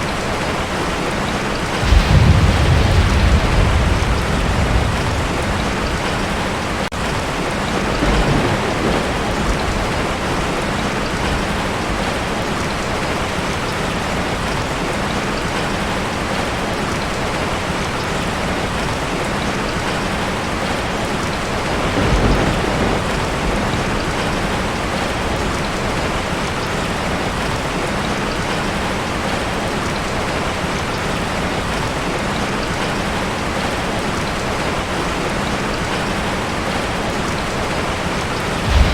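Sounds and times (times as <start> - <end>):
heavy rain on a tin roof: 0.0 - 38.9
low thunder rumbles: 1.2 - 13.0, 21.2 - 26.4, 37.8 - 38.9.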